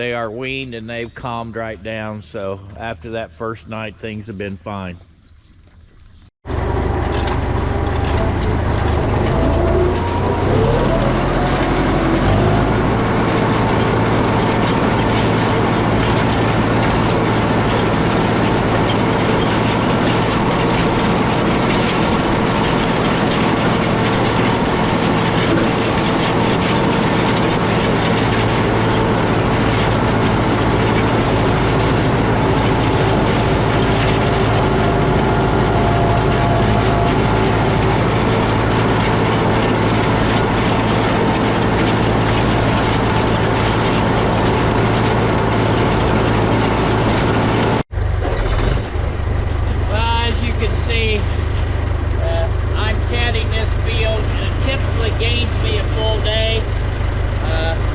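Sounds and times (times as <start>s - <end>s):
tractor engine running under load: 6.4s - 57.9s.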